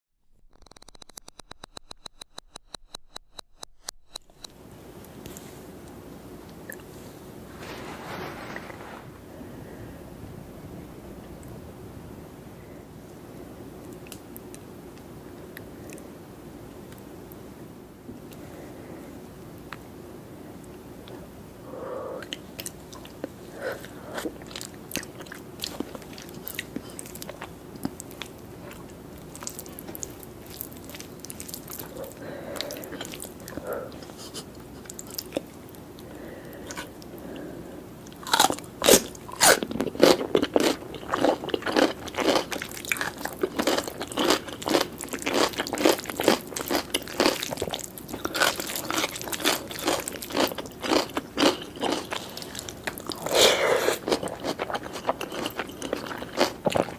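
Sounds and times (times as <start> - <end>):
faint steady hum: 4.1 - 56.9
wet mouth clicks and chewing: 24.2 - 35.8, 38.0 - 56.9
crunchy bites and chewing: 38.1 - 56.9.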